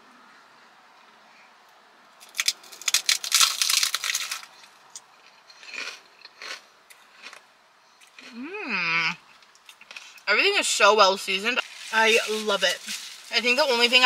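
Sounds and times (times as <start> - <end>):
crunching crisp taco: 1.6 - 10.3, 11.6 - 14.0.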